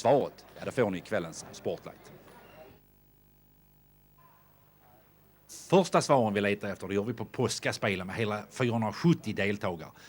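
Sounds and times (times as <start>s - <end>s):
faint hiss: 0.0s - 10.0s
faint hum: 0.0s - 10.0s.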